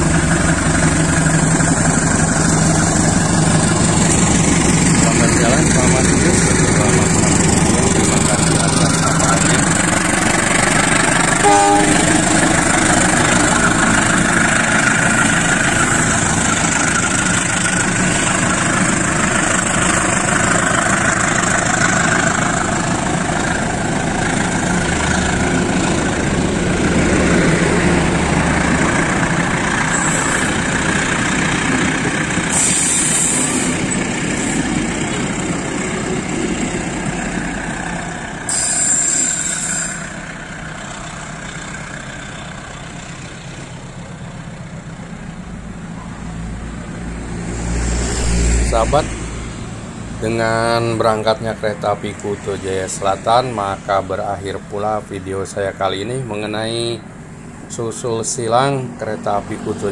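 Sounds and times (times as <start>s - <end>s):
train wheels on rails: 0.0s - 44.1s
diesel locomotive engine: 0.0s - 59.9s.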